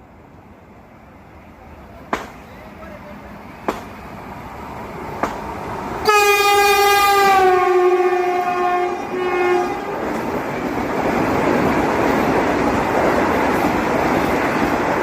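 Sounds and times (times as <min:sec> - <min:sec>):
train rushing by: 0:00.0 - 0:15.0
train horn blast: 0:06.0 - 0:10.1.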